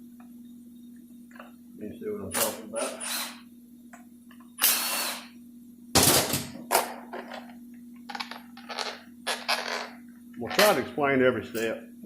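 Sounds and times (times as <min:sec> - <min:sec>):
power tool running in bursts: 0:04.6 - 0:05.3.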